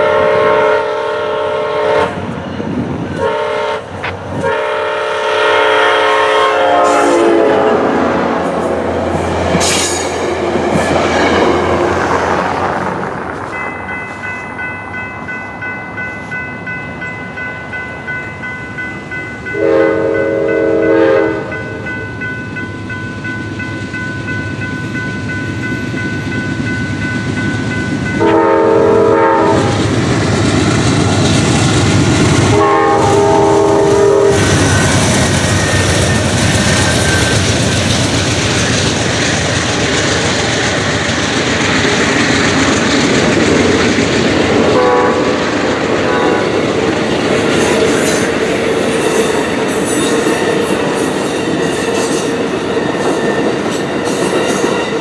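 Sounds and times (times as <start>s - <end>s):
train horn blasts: 0.0s - 2.4s, 3.2s - 10.0s, 19.5s - 21.9s, 28.2s - 29.9s, 32.4s - 35.1s, 44.6s - 45.4s, 46.0s - 46.6s
train passing close by: 0.0s - 55.0s
ringing crossing bell: 13.5s - 29.2s.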